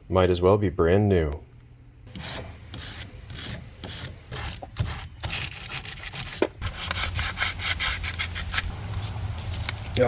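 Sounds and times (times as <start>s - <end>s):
terminal cleaner scraping battery cable: 2.1s - 10.0s.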